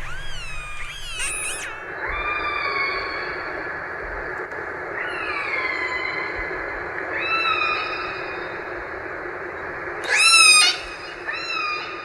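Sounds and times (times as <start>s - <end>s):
killer whale calls: 0.0s - 3.3s, 10.0s - 11.9s
steady background hiss: 0.0s - 12.0s.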